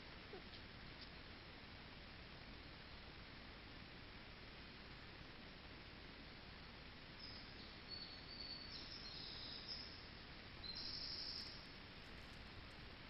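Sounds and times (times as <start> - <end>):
microphone hiss: 0.0 - 13.0
songbird whistling thin notes: 7.2 - 10.0, 10.6 - 11.7.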